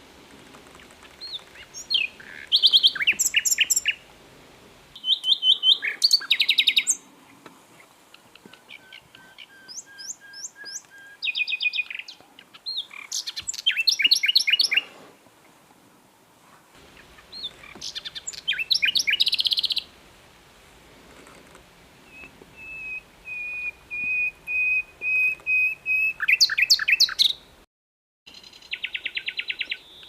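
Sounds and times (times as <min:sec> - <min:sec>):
nightingale singing: 0:00.7 - 0:04.1, 0:04.9 - 0:07.1, 0:07.8 - 0:14.9, 0:16.8 - 0:20.0, 0:22.0 - 0:27.6, 0:28.3 - 0:30.0.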